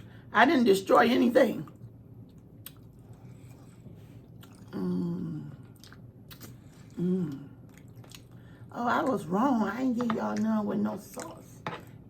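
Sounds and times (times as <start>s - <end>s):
crispy food bitten and chewed: 1.6s - 4.8s, 5.6s - 8.5s.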